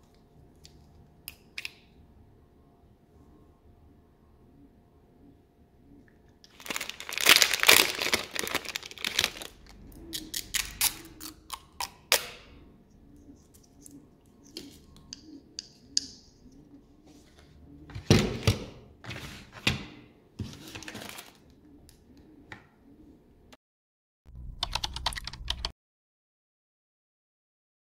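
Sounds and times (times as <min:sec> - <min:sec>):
paper and packaging rustling: 0:06.5 - 0:11.2, 0:20.4 - 0:21.5.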